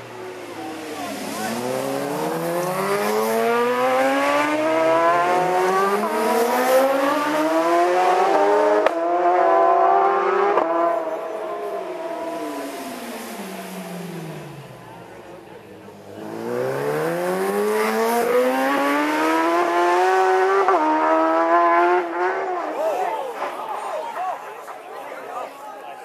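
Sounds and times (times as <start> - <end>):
racing motorcycle engine revving: 0.0 - 22.8.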